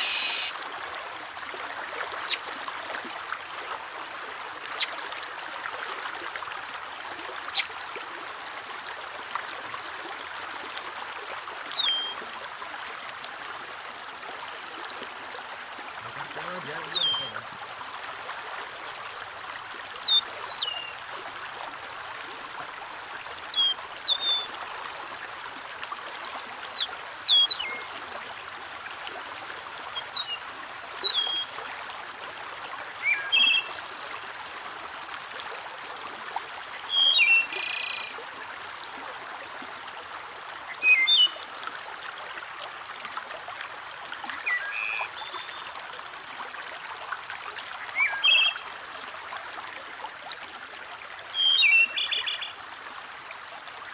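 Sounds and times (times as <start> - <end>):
songbird calling: 0.0 - 0.6, 2.2 - 2.5, 7.5 - 7.8, 10.9 - 12.2, 16.0 - 17.4, 19.8 - 21.0, 23.1 - 24.5, 26.7 - 27.9, 30.0 - 31.5, 33.0 - 34.2, 36.9 - 38.2, 40.7 - 42.0, 44.4 - 45.8, 48.0 - 49.2, 51.3 - 52.6
water trickling: 0.0 - 53.9.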